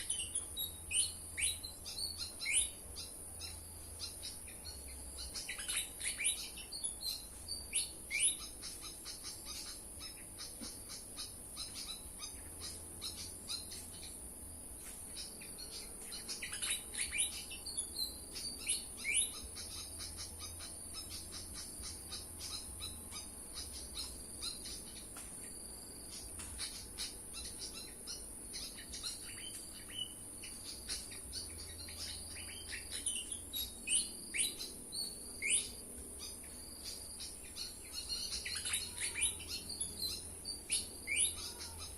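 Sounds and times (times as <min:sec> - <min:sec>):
high-pitched insect drone: 0:15.1 - 0:41.9
bird squeaky falling calls: 0:37.6 - 0:39.7, 0:40.7 - 0:41.9.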